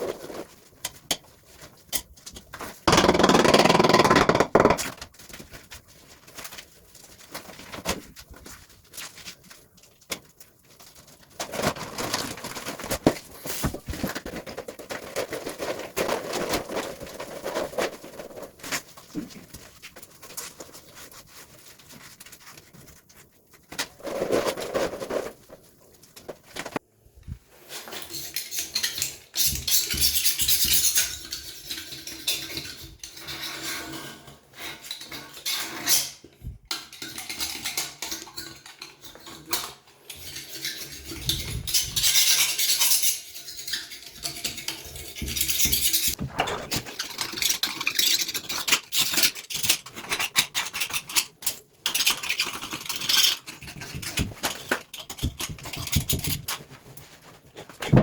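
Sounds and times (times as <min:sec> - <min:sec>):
hand tool scraping: 0:02.9 - 0:04.9
tool clinks and knocks: 0:02.9 - 0:04.9.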